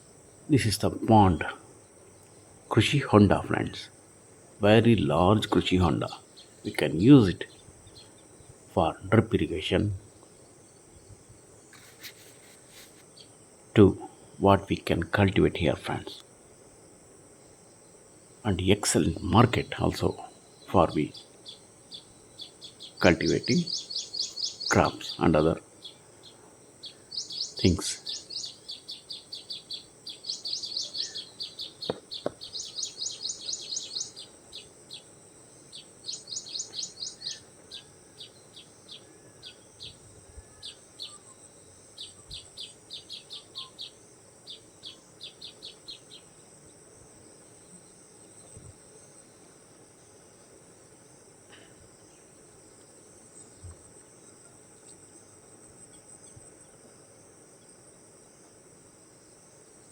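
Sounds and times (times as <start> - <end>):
high-pitched insect drone: 18.4 - 46.4
rapid high chirps: 20.7 - 35.1, 35.7 - 38.7.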